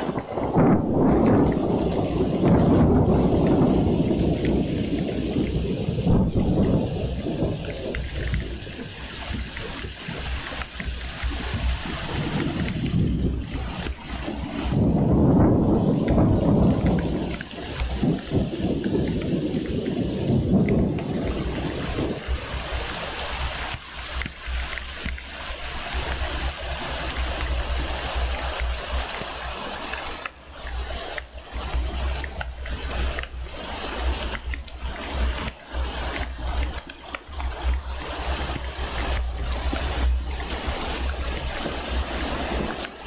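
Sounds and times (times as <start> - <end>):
low thunder rumble: 0.0 - 24.7
steady rain hissing: 0.0 - 43.0.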